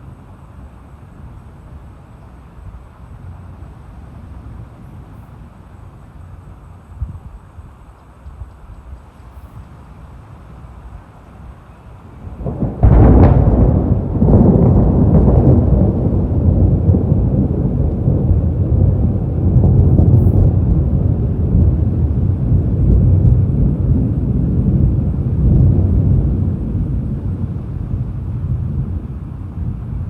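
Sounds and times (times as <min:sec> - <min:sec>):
deep rumble of thunder: 0:12.1 - 0:30.0
thunderclap: 0:12.2 - 0:30.0.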